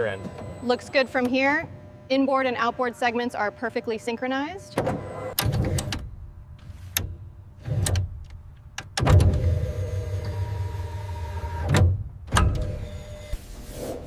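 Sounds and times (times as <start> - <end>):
mechanical clunks: 4.6 - 10.6.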